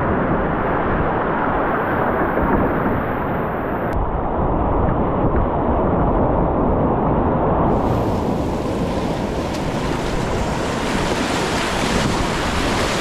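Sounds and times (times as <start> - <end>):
whitewater rushing: 7.7 - 13.0.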